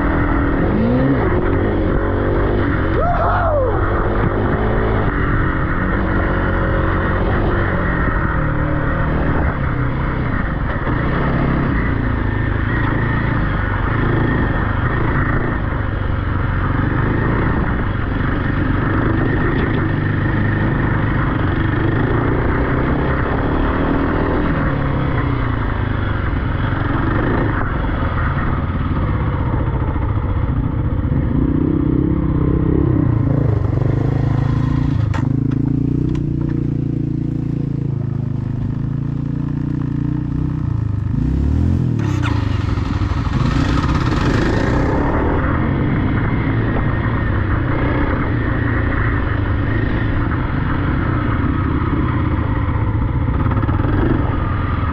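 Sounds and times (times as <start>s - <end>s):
off-road vehicle engine revving: 0.0s - 38.9s, 39.5s - 54.9s.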